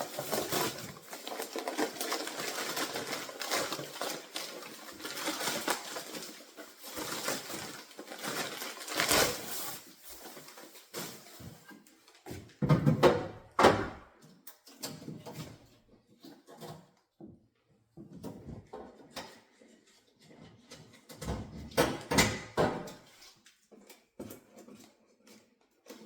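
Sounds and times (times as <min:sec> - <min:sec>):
packaging rustling and scraping: 0:00.0 - 0:12.2.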